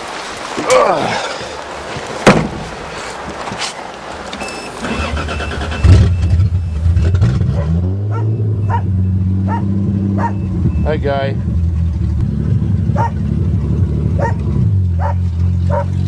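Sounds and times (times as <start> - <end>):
sharp knock: 2.2 - 2.7
car engine cranking and idling: 4.2 - 16.0.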